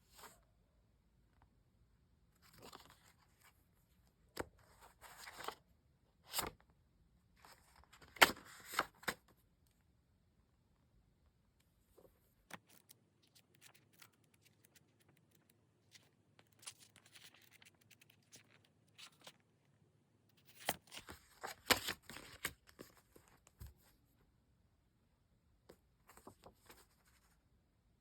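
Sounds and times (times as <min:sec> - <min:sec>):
crackling and rustling packaging: 0:12.0 - 0:19.6, 0:20.3 - 0:23.9.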